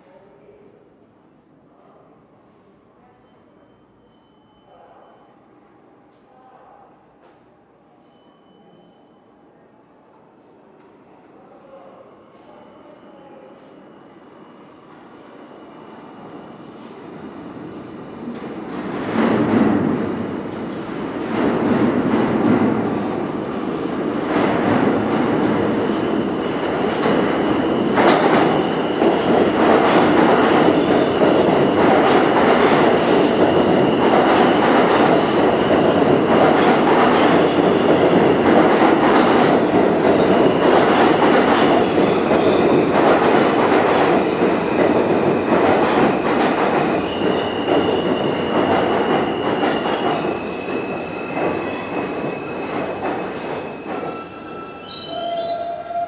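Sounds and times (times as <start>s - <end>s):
subway train rumbling: 0.0s - 56.0s
high wheel squeal: 53.6s - 56.0s.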